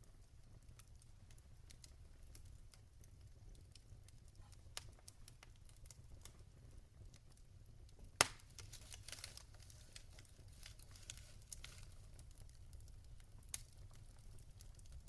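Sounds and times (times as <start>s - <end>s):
logs crackling in fireplace: 0.0s - 15.0s
loud wood pop: 8.2s - 8.4s.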